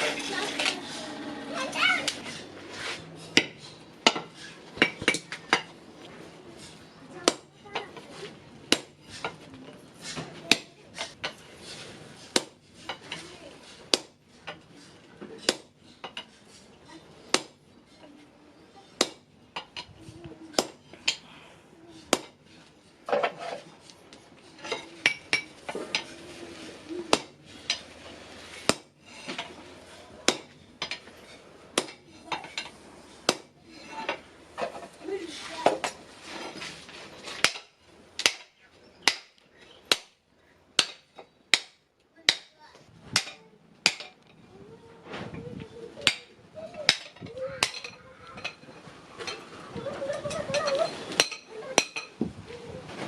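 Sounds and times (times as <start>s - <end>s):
hammer striking steel on anvil: 30.2s - 31.0s, 40.8s - 42.5s.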